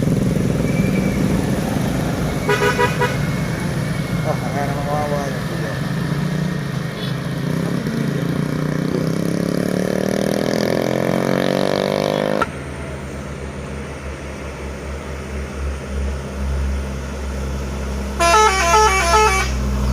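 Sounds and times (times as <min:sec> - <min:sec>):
diesel truck engine: 0:00.0 - 0:19.9
multi-tone musical horn: 0:02.5 - 0:03.3, 0:18.2 - 0:19.7.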